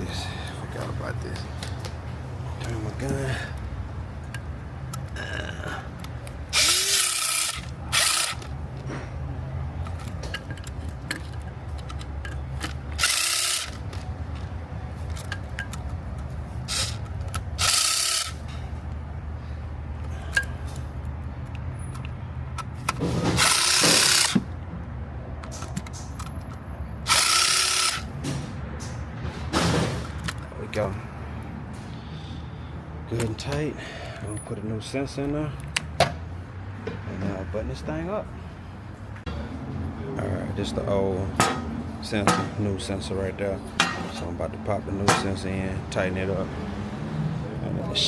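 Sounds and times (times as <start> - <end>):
cordless impact gun bursts: 6.5 - 8.4, 13.0 - 13.8, 16.7 - 18.4, 23.3 - 24.4, 27.0 - 28.1.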